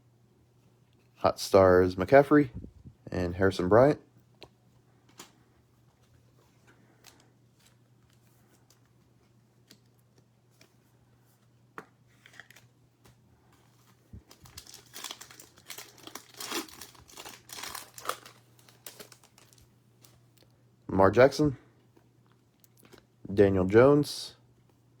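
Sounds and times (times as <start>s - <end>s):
wrapper crinkling and tearing: 14.2s - 20.2s.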